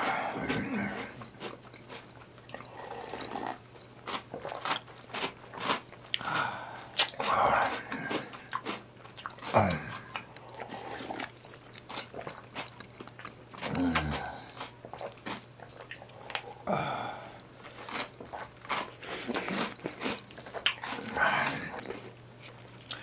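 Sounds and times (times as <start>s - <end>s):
wet chewing of cereal: 0.0s - 23.0s.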